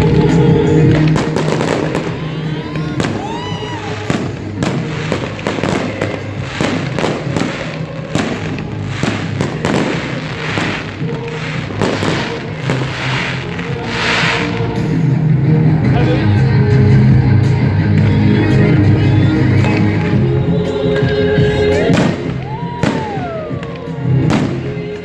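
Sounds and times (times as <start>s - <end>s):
fireworks bangs and crackles: 0.0s - 16.2s, 17.0s - 25.0s
festival music: 0.0s - 25.0s
whistling firework shells: 21.9s - 23.6s.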